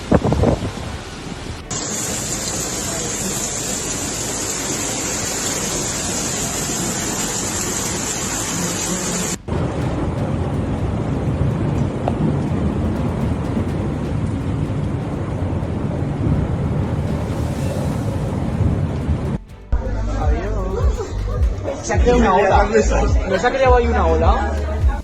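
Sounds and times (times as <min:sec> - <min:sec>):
rushing water: 0:00.0 - 0:19.7
heavy rain: 0:00.0 - 0:25.0
low storm rumble: 0:00.0 - 0:25.0.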